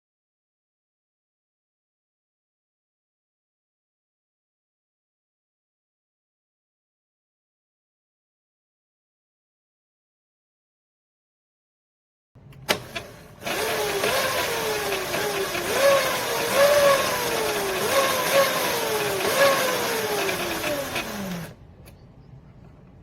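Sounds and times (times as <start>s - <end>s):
click: 12.4s - 13.1s
electric motor whining: 12.7s - 21.6s.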